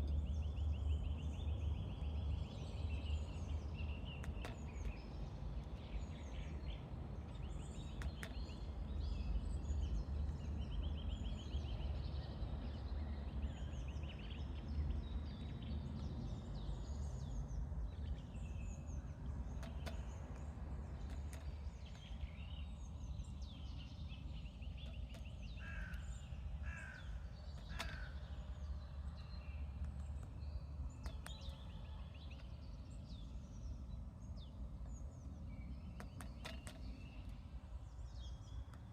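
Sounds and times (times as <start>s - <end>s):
small birds chirping: 0.0s - 38.9s
low bird calls: 21.0s - 30.3s.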